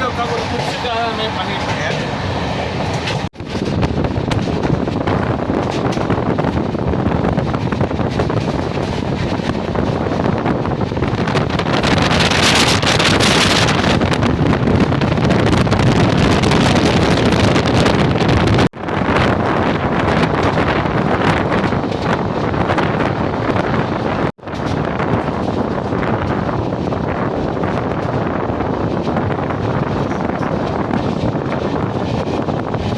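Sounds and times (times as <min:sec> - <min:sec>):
train rumbling at high speed: 0:00.0 - 0:32.9
wind buffeting microphone: 0:00.0 - 0:32.9.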